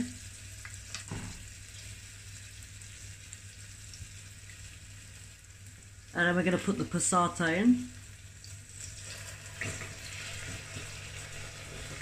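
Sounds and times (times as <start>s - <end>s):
mushrooms sizzling in oil: 0.0s - 12.0s.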